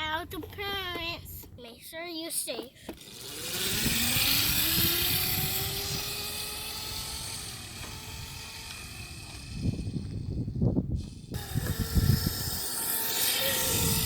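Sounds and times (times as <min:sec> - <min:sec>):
tyres and wind hiss: 0:02.7 - 0:14.0
dirt bike motor whine: 0:03.0 - 0:14.0.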